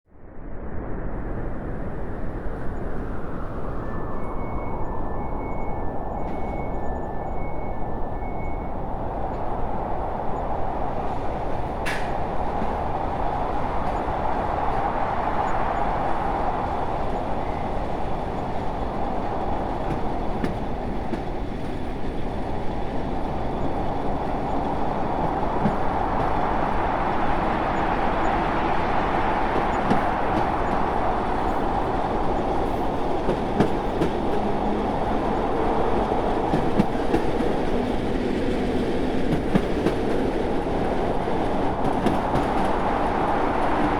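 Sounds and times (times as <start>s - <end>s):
train rumbling on rails: 0.3s - 43.9s
faint clicks: 11.8s - 12.8s.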